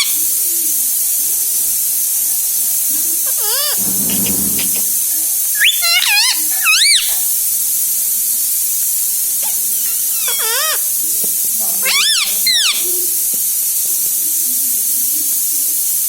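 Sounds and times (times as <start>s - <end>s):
steady high hiss: 0.0s - 16.0s
parrot chirping calls: 3.2s - 5.0s, 5.6s - 7.4s, 9.4s - 11.1s, 11.8s - 13.2s.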